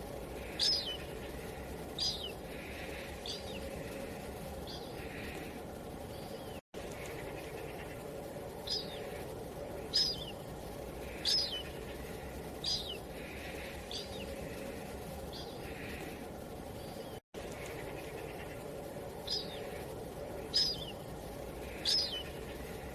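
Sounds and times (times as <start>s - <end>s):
low wind-like ambience: 0.0s - 22.9s
bird chirping: 0.4s - 16.1s, 16.7s - 22.9s.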